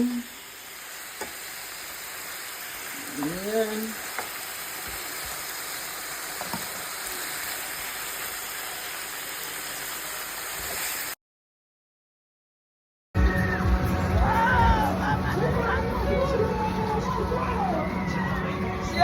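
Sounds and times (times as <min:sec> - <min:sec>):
beef sizzling in a pan: 0:00.0 - 0:11.2.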